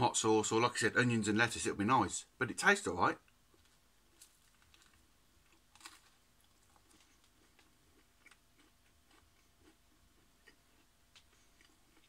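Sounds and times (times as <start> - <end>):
person chewing: 4.1 - 12.0.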